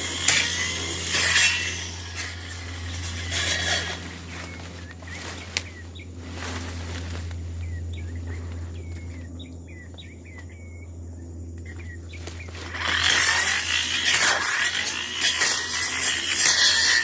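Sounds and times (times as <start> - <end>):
brush cutter engine idling: 0.0 - 10.7, 11.6 - 17.0
bird chirping: 7.6 - 12.6.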